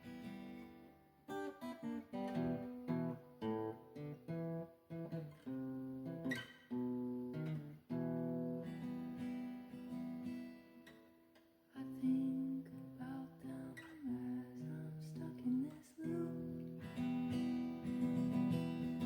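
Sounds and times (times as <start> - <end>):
acoustic guitar strumming chords: 16.3 - 19.0.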